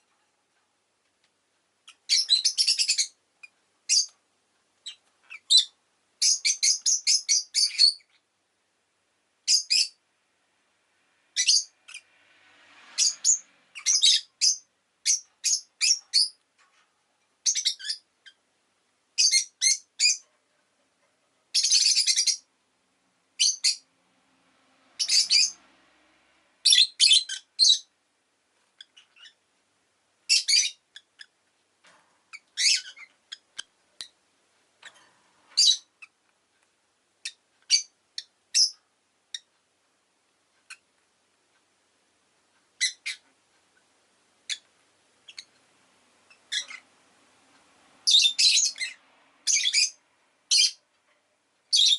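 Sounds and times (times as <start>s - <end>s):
lovebird chirping: 1.8s - 4.2s, 4.8s - 8.3s, 9.4s - 10.0s, 11.2s - 12.2s, 12.9s - 16.4s, 17.4s - 18.4s, 19.2s - 20.3s, 21.5s - 22.5s, 23.4s - 23.9s, 24.9s - 25.7s, 26.6s - 27.9s, 28.7s - 29.4s, 30.2s - 31.4s, 32.3s - 34.2s, 34.8s - 36.2s, 37.2s - 39.5s, 40.6s - 40.9s, 42.7s - 43.2s, 44.4s - 45.6s, 46.2s - 46.9s, 48.0s - 50.8s, 51.7s - 51.9s.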